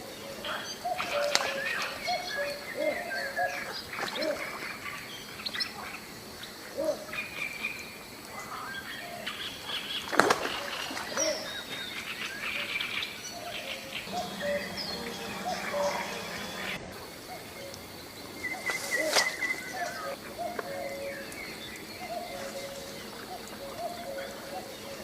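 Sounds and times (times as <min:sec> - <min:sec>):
birds calling and chirping: 0:08.7 - 0:25.0.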